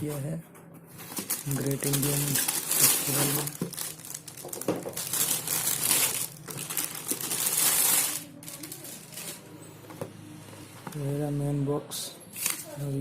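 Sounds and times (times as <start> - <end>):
packaging crinkling: 1.0 - 9.4.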